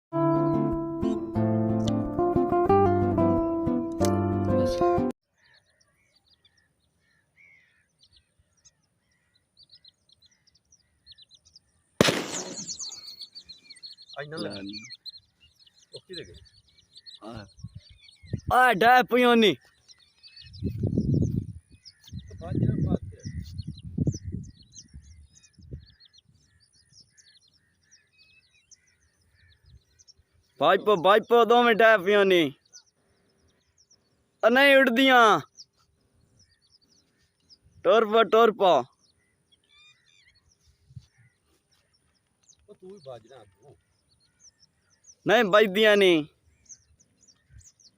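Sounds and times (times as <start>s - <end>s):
faint bird chirps: 5.2s - 47.9s
rush of bird calls: 5.3s - 47.9s
shotgun blast: 12.0s - 13.0s.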